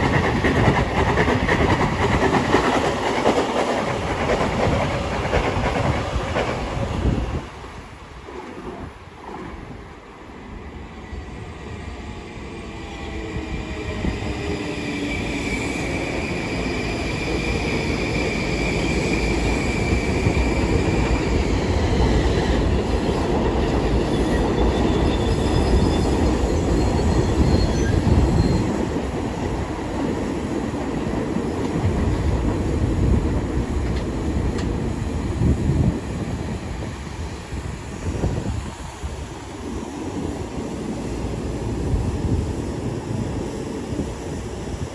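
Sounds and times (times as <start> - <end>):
train wheels rumbling: 0.0 - 10.2
high wheel squeal: 22.9 - 28.9.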